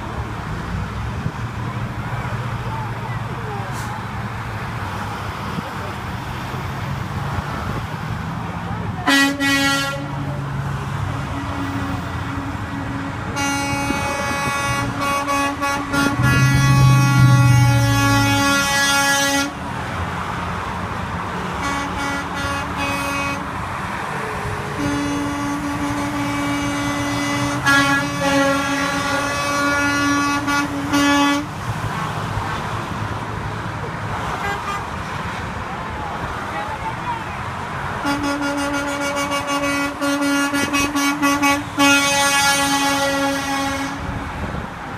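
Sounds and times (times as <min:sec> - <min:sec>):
truck engines running: 0:00.0 - 0:44.9
truck air horn blasts: 0:09.0 - 0:10.4, 0:11.0 - 0:19.6, 0:21.6 - 0:23.6, 0:24.2 - 0:31.6, 0:34.4 - 0:34.9, 0:38.0 - 0:44.3.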